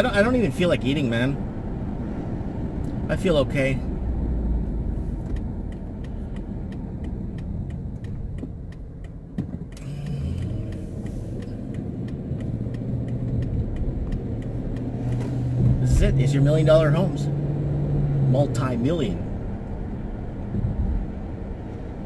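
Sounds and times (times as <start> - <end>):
car engine and road rumble: 0.0 - 22.0
car turn signal clicking: 5.2 - 15.8.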